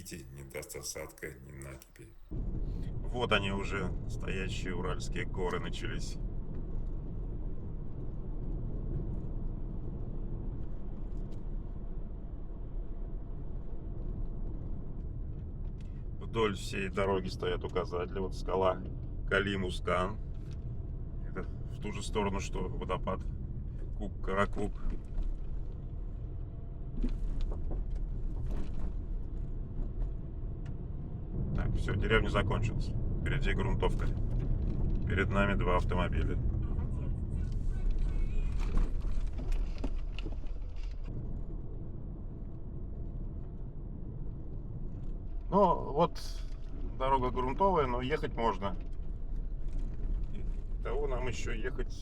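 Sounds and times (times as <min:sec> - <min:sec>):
car engine and tyres rumbling: 0:02.3 - 0:52.0
faint knocks and rattles: 0:23.2 - 0:31.6.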